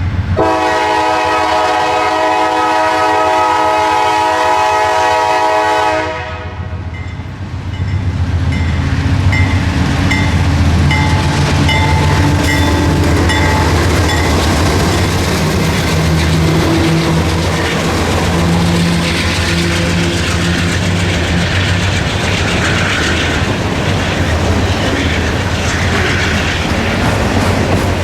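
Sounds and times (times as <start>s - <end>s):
locomotive engine rumble: 0.0s - 28.0s
locomotive horn chord: 0.4s - 6.8s
wheels clicking over rail joints: 7.7s - 28.0s.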